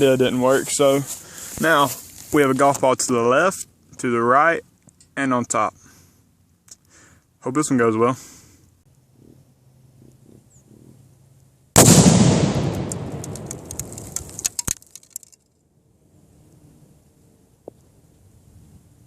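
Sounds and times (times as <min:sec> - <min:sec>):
explosion boom: 0:11.8 - 0:14.2
sharp cracks: 0:11.8 - 0:15.5.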